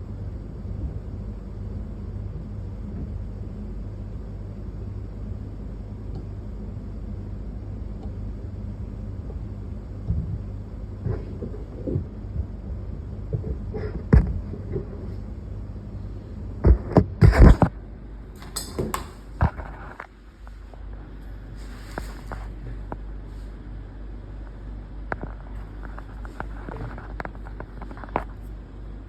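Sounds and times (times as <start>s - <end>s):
steady low hum: 0.0s - 29.0s
objects clicking and knocking: 18.4s - 19.6s.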